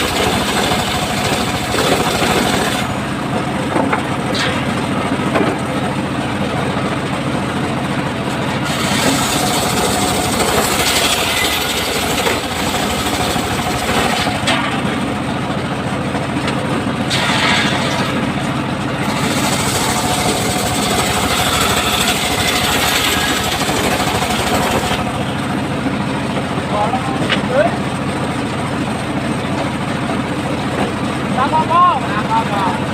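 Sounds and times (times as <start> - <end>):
saw blade cutting timber: 0.0 - 3.2, 4.2 - 4.9, 8.6 - 14.9, 17.1 - 18.3, 19.0 - 25.4
sawmill engine drone: 0.0 - 32.9.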